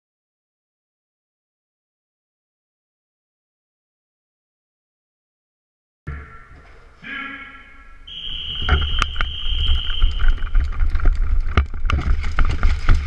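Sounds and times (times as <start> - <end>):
footsteps and rattling kit: 6.1 - 7.0, 8.6 - 13.0
high-pitched signal tone: 7.0 - 10.4.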